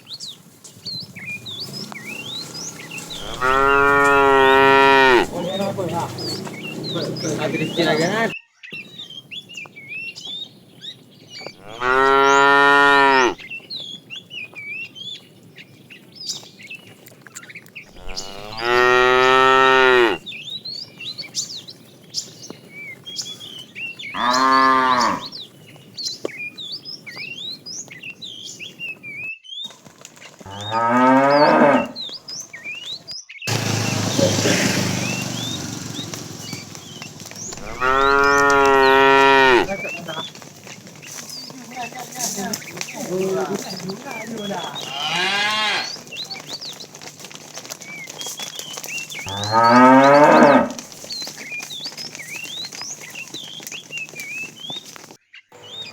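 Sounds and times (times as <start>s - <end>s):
small birds chirping: 0.0s - 55.9s
cattle mooing: 1.6s - 8.3s, 11.6s - 13.4s, 18.0s - 20.2s, 24.2s - 25.3s, 30.5s - 32.0s, 33.5s - 40.4s, 43.1s - 46.0s, 49.3s - 50.8s.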